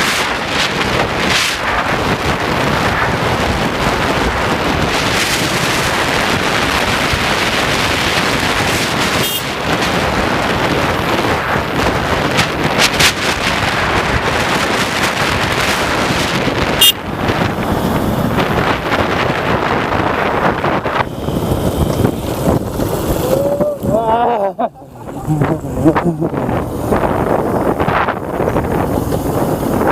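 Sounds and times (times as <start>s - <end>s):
wind rushing over microphone: 0.0s - 29.9s.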